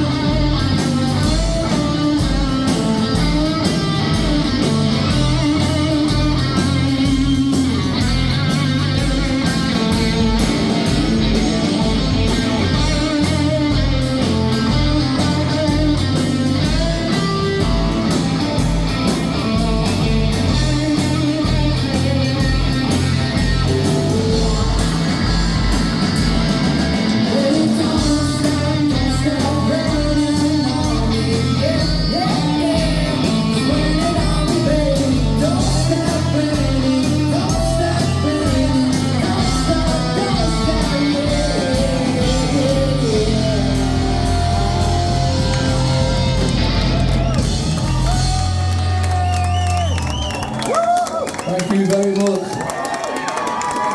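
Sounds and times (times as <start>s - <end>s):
live rock band playing: 0.0s - 53.9s
sung lead vocal: 27.0s - 49.0s.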